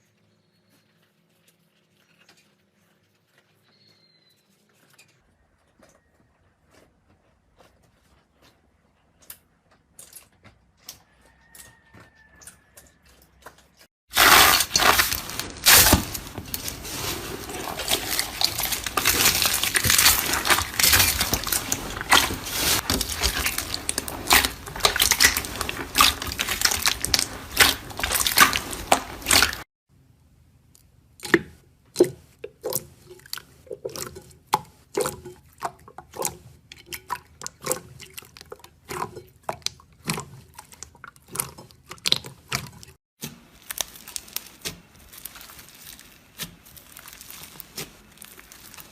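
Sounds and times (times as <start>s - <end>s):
slime crackling and popping: 14.1s - 29.6s, 34.9s - 48.9s.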